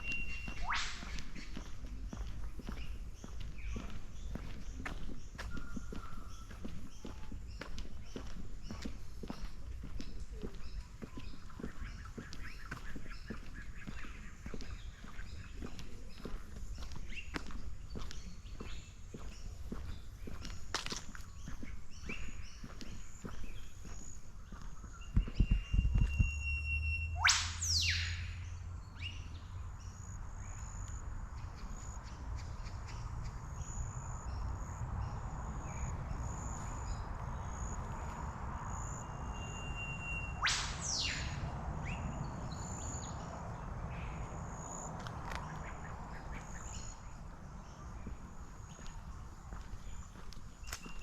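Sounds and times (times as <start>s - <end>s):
fast sweeping bird calls: 0.0s - 8.9s, 27.2s - 29.1s, 38.8s - 43.2s
faint high chirping: 0.0s - 20.4s, 21.0s - 31.0s.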